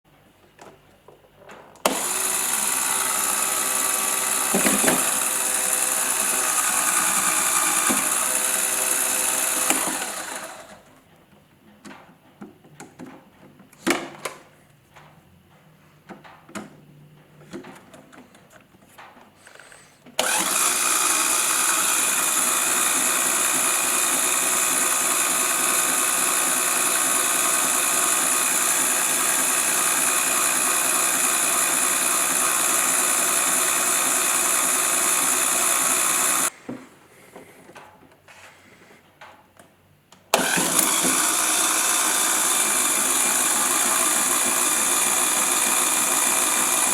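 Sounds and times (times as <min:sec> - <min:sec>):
electric motors geared whine: 0:01.8 - 0:10.9, 0:20.2 - 0:36.5, 0:40.4 - 0:46.9.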